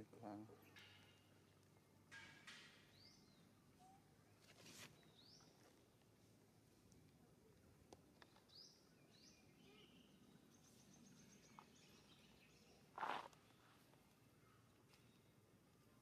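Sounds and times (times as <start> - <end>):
bird chirps: 8.2 - 13.8.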